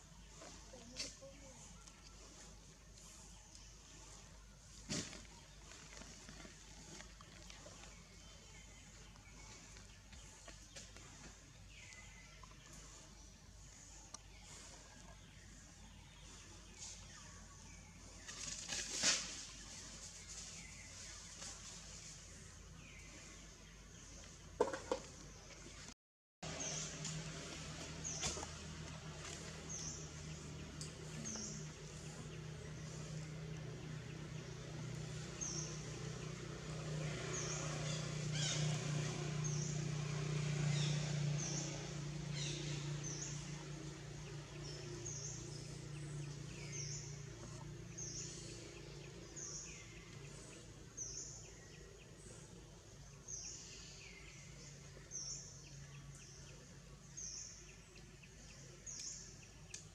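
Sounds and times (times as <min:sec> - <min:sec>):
low hum: 0:26.4 - 0:59.1.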